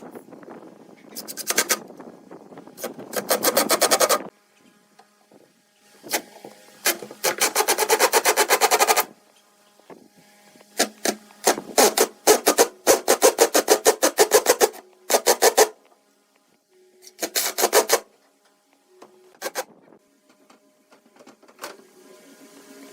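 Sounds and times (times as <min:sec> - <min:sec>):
hand tool working wood: 0:06.1 - 0:09.1, 0:10.5 - 0:15.9, 0:17.0 - 0:18.1.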